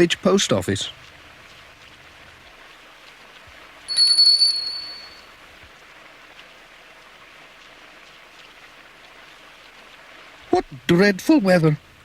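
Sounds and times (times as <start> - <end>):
rain hiss: 0.0 - 12.0
shop door bell ringing: 3.9 - 5.2.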